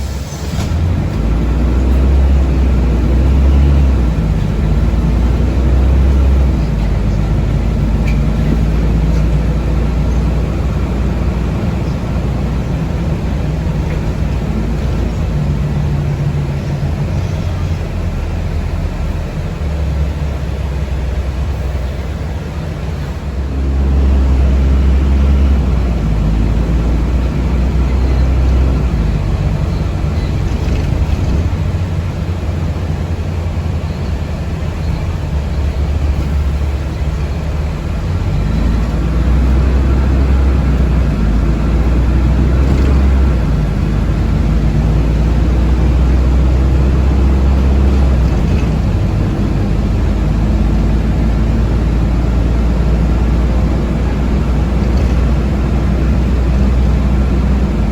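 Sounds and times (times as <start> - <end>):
bus rumbling on road: 0.0 - 57.9.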